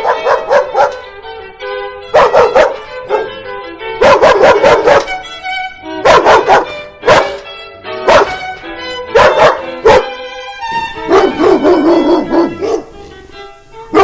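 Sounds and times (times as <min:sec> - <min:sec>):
dog barking: 0:00.0 - 0:01.0, 0:02.1 - 0:03.4, 0:04.0 - 0:05.1, 0:06.0 - 0:07.4, 0:08.0 - 0:08.4, 0:09.1 - 0:10.2, 0:11.0 - 0:13.0
background music: 0:00.0 - 0:14.0.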